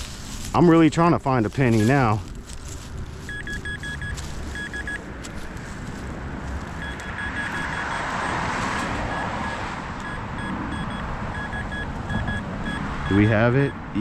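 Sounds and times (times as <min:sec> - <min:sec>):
metal detector beeps: 0:01.6 - 0:02.2, 0:03.3 - 0:05.1, 0:06.8 - 0:08.4, 0:09.1 - 0:13.8.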